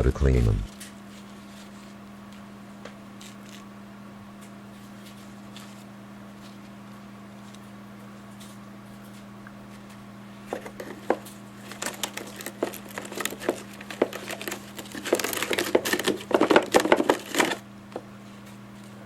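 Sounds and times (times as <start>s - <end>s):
steady low hum: 0.0s - 0.8s
filters crinkling and rustling: 4.4s - 19.0s.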